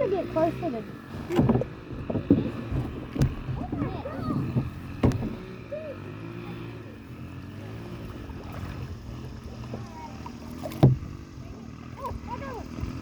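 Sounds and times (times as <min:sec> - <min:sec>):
murmur of distant voices: 0:00.0 - 0:13.0
sharp knock on kayak: 0:01.2 - 0:05.5, 0:10.6 - 0:11.1.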